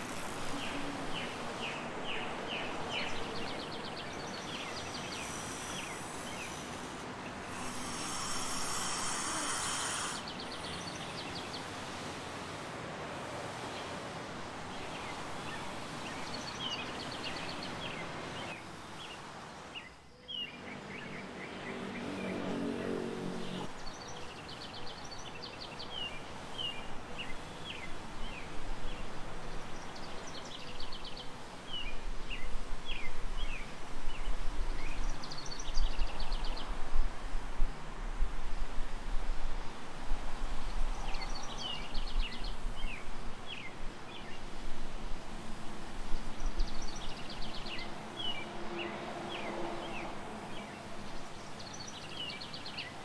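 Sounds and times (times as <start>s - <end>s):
small birds chirping: 0.0s - 11.8s
outdoor background noise: 0.0s - 53.0s.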